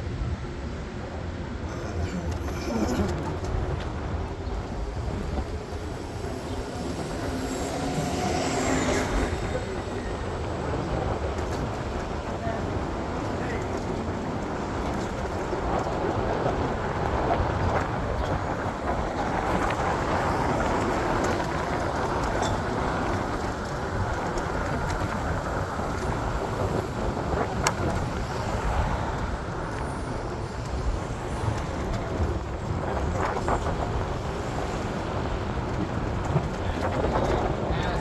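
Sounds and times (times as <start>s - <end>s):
road traffic rumble: 0.0s - 38.0s.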